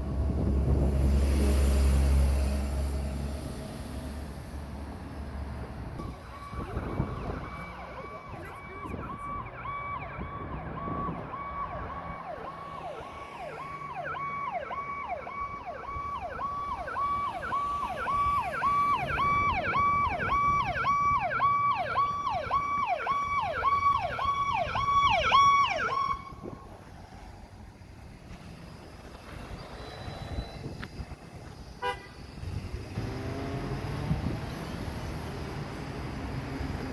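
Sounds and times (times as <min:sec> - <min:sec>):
fire engine siren wailing: 0:06.0 - 0:26.9.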